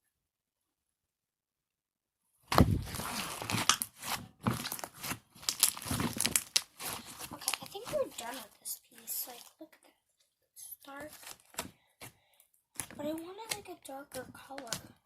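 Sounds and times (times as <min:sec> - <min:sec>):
slime being kneaded by hand: 0:02.5 - 0:09.6, 0:10.9 - 0:15.0.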